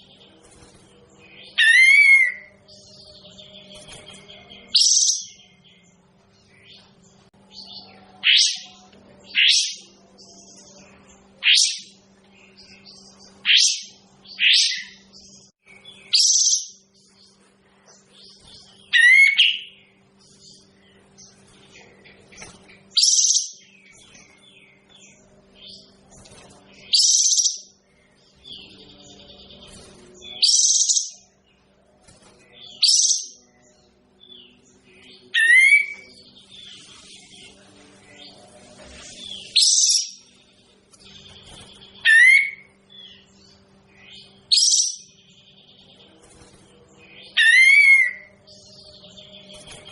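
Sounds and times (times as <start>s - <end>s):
steady low hum: 0.0s - 49.9s
songbird calling sharp phrases: 42.0s - 42.7s.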